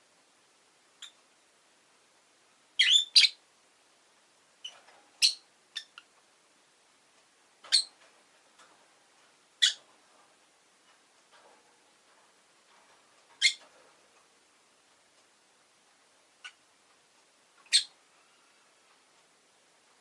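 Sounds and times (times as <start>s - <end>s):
bird chirping: 1.0s - 1.2s, 2.8s - 3.4s, 4.6s - 6.1s, 7.6s - 8.0s, 9.6s - 9.9s, 13.4s - 13.7s, 16.4s - 16.6s, 17.7s - 18.0s.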